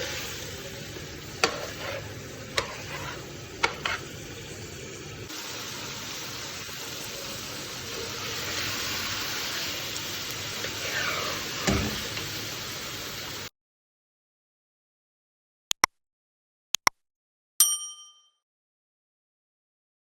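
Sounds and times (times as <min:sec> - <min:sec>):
curry sizzling in a pan: 0:00.0 - 0:13.5.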